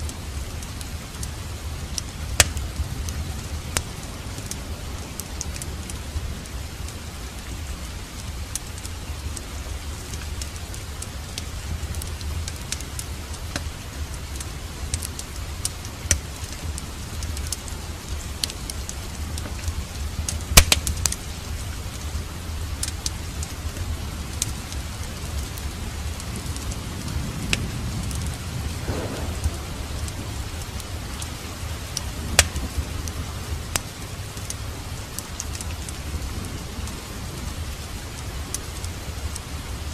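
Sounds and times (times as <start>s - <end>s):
rain hiss: 0.0s - 39.9s
wood fire crackling and popping: 0.0s - 39.9s
low rumble: 27.3s - 33.3s.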